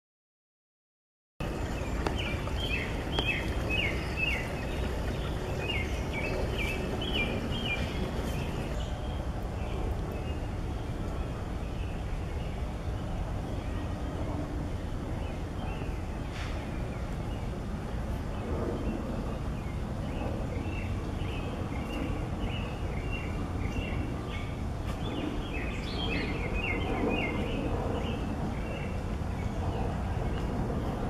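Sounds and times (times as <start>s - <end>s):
small birds chirping: 1.4s - 10.5s
low city rumble: 1.4s - 31.0s.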